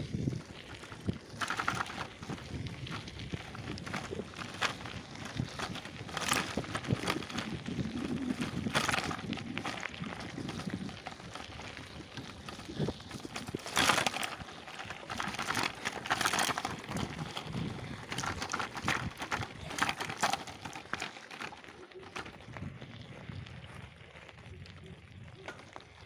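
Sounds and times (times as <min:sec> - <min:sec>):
crunching through undergrowth: 0:00.0 - 0:26.0.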